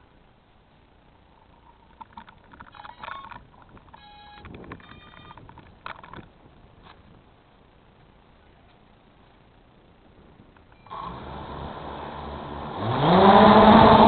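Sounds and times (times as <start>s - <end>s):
clicks and knocks of handling: 1.9s - 7.0s
short electronic beeps: 2.7s - 3.4s, 4.0s - 5.4s.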